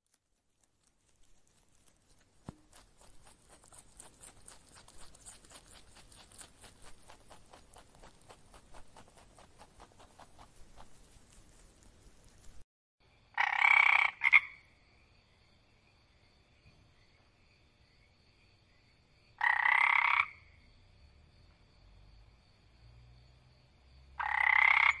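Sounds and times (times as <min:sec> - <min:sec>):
rabbits nibbling in straw: 0:00.0 - 0:12.6.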